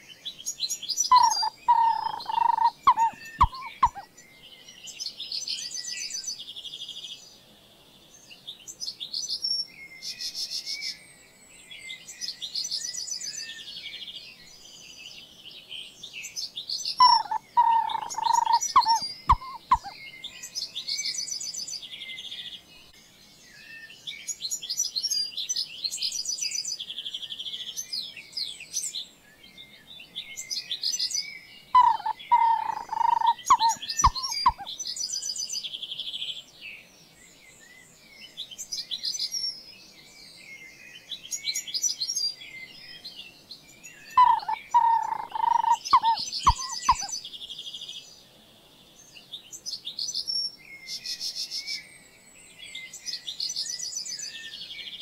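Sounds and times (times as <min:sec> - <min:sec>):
birds chirping and trilling: 0:00.0 - 0:55.0
lower loud bird call: 0:01.0 - 0:04.1, 0:17.0 - 0:20.1, 0:31.8 - 0:35.2, 0:44.0 - 0:47.2.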